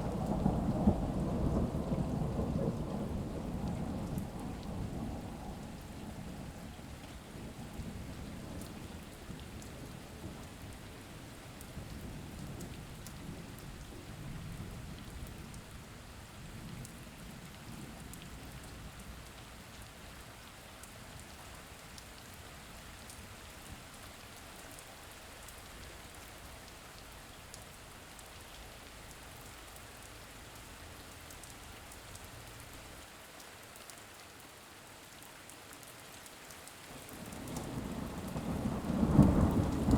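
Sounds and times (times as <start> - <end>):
low rumble of thunder: 0.0 - 19.3, 37.0 - 39.9
steady rain falling: 0.0 - 39.9.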